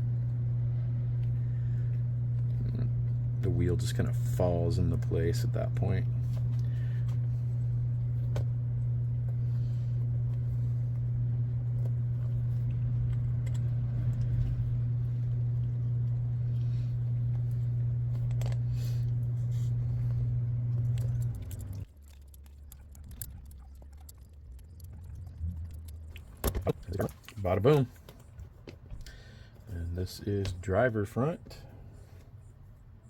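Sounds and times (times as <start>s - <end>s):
steady low hum: 0.0s - 33.0s
small parts clicking and rattling: 21.0s - 27.3s.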